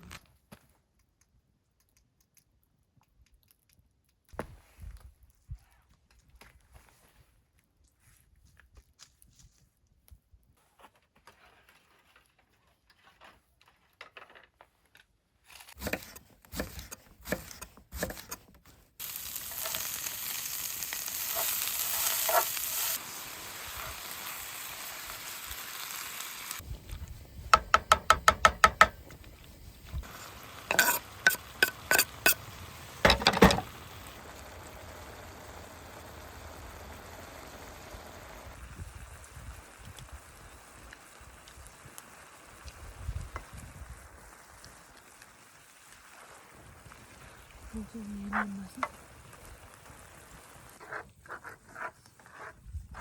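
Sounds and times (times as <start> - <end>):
food sizzling in a frying pan: 19.0 - 50.8
utensils clattering against pan: 30.7 - 32.4, 33.1 - 33.7.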